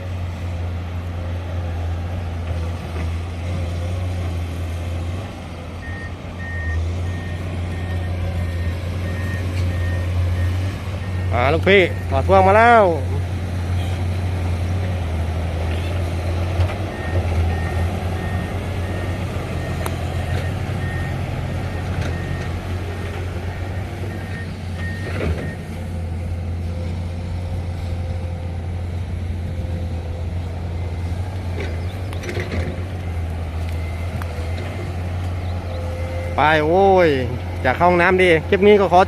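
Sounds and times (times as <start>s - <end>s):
diesel truck engine running: 0.0s - 39.0s
reversing alarm beeping: 5.8s - 12.8s, 16.8s - 25.7s.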